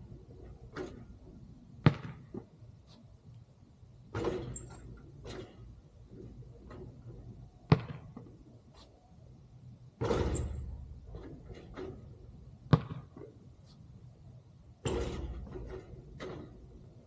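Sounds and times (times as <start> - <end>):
ball hitting backboard and rim: 1.7 - 2.5, 4.1 - 5.7, 7.7 - 8.3, 10.0 - 13.4, 14.8 - 16.7
basketball bouncing on court: 1.8 - 2.5, 7.7 - 8.3, 12.6 - 13.3.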